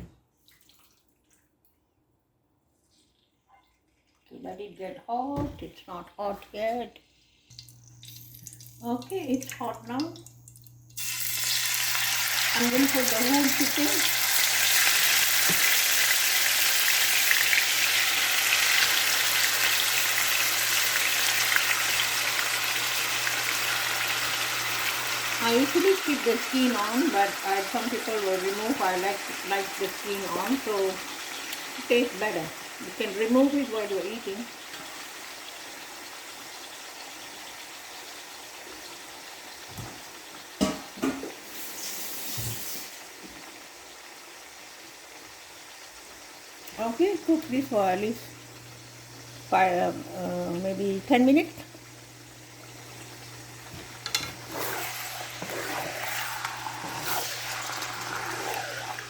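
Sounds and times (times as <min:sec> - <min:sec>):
chicken sizzling in hot fat: 0:06.6 - 0:59.0.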